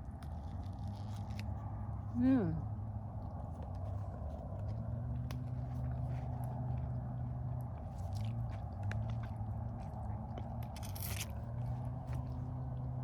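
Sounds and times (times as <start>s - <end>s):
person biting and chewing fruit: 0.0s - 1.6s, 8.0s - 10.8s
steady low hum: 0.0s - 13.0s.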